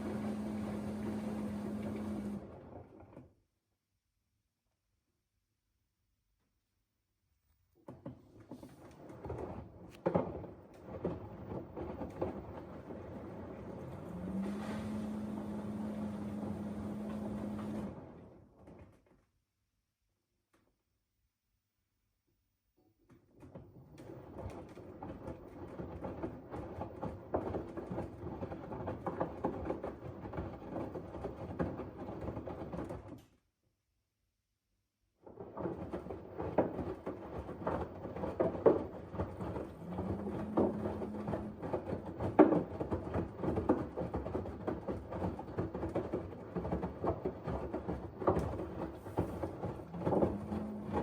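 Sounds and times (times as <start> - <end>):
water sloshing in washing machine: 0.0 - 3.3, 7.8 - 19.0, 23.4 - 33.1, 35.2 - 51.0
wet laundry tumbling: 0.0 - 3.3, 7.8 - 19.2, 23.4 - 33.2, 35.2 - 51.0.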